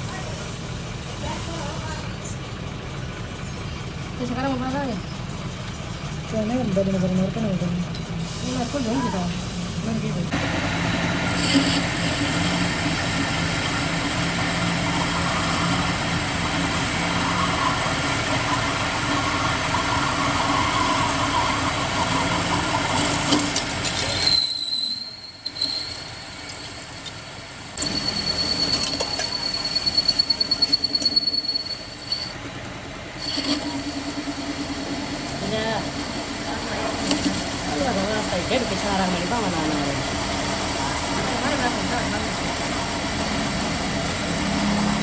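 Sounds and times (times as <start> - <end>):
workshop machinery humming: 7.1 - 45.0
high-pitched pulsing squeal: 14.4 - 27.1, 27.8 - 32.4, 33.2 - 35.9.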